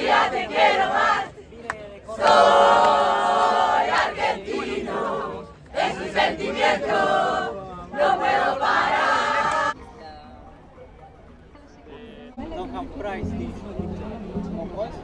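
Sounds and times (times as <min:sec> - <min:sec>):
crowd chanting and singing: 0:00.0 - 0:09.8.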